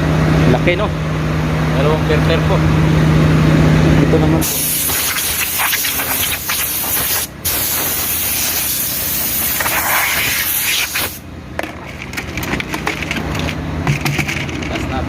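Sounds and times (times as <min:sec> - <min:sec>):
compressed air hissing from blow gun: 0:04.4 - 0:11.2.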